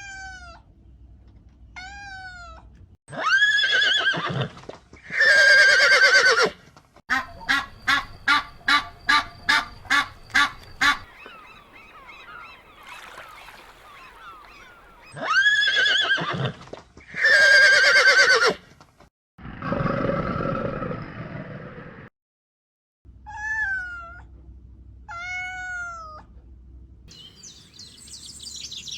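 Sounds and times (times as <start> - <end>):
horse whinnying: 3.1 - 6.6, 15.2 - 18.6
waterfowl calls: 7.1 - 15.2
faint high chirps: 27.1 - 28.9.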